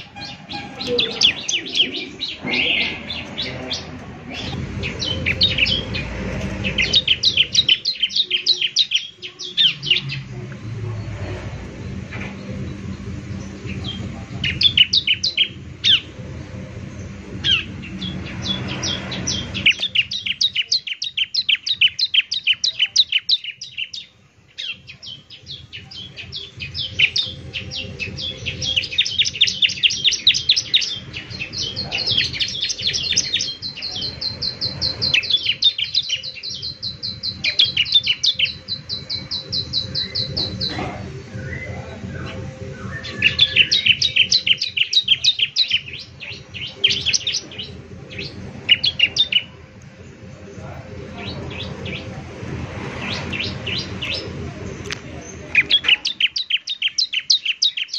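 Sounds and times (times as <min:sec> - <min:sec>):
low hum: 0:00.0 - 0:08.5, 0:09.3 - 0:20.3
bird chirping and trilling: 0:00.0 - 0:57.9.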